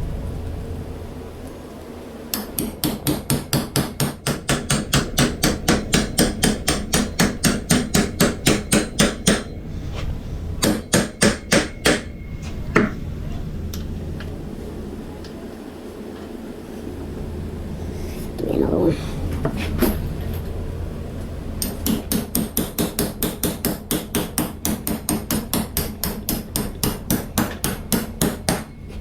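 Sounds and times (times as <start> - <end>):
hammer blows on bolts: 2.4 - 9.6, 10.6 - 12.2.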